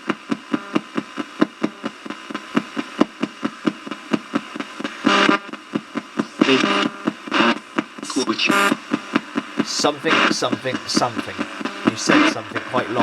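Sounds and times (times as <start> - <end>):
fast train of radio clicks: 8.1 - 13.0
chopped radio voice fragments: 9.6 - 13.0.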